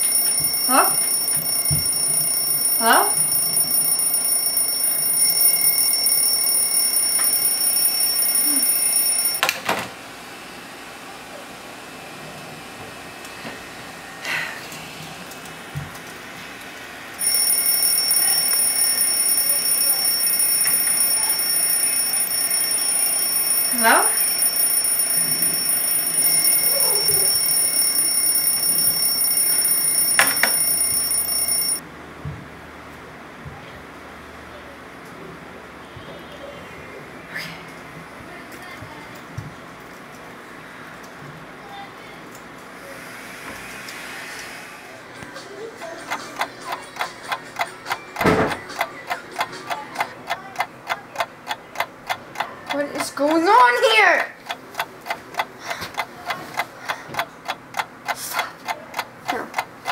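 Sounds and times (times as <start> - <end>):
high-pitched electronic ringing tone: 0.0 - 9.4, 17.2 - 31.8
clicks: 17.2 - 31.8.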